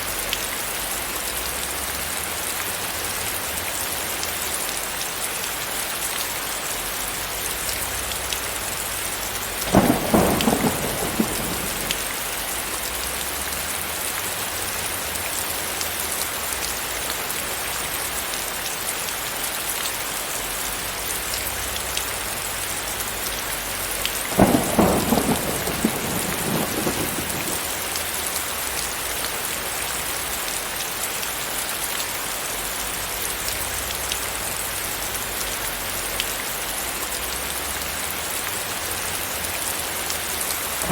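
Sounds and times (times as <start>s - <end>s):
steady rain falling: 0.0s - 40.9s
thunder rumbling: 9.6s - 13.5s, 24.3s - 28.0s.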